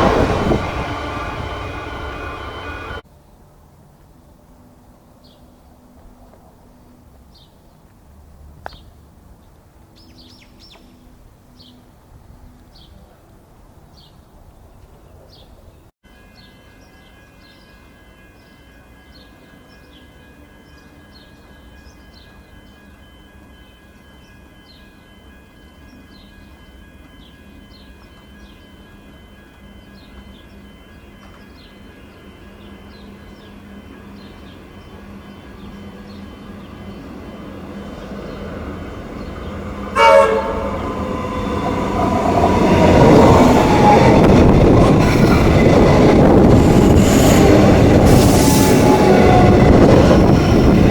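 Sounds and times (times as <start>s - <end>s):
train horn blast: 0.0s - 3.0s, 39.2s - 43.2s
electric train hum and whine: 0.0s - 7.1s, 16.2s - 50.9s
birds chirping: 29.7s - 46.2s.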